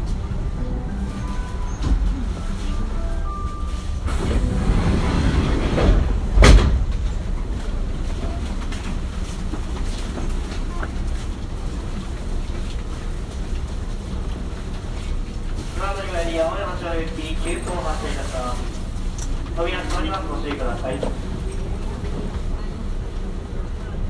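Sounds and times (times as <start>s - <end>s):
train rail rumble: 0.0s - 24.0s
loud clunk: 4.0s - 7.8s.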